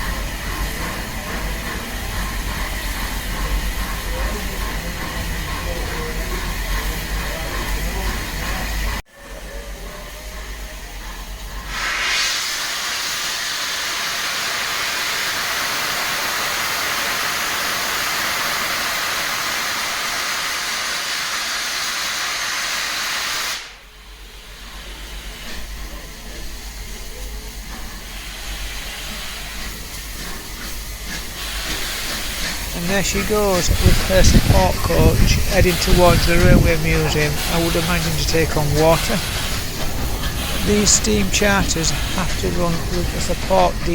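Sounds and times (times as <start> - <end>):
station background noise: 0.0 - 12.0, 23.9 - 43.9
steam locomotive hissing steam: 0.0 - 43.9.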